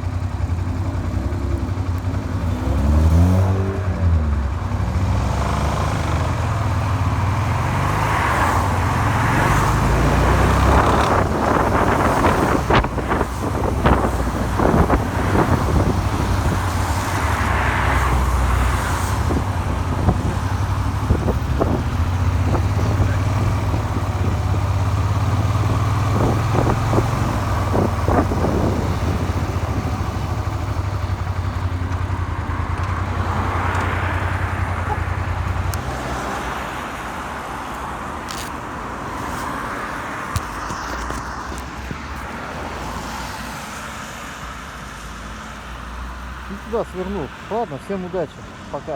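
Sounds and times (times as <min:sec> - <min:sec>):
motorcycle engine running: 0:00.0 - 0:36.2
wind on microphone: 0:08.6 - 0:30.6.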